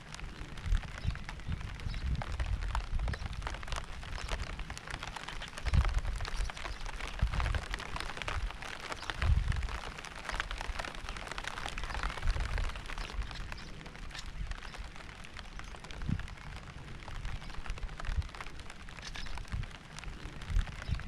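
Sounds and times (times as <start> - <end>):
steady rain drops: 0.0 - 21.0.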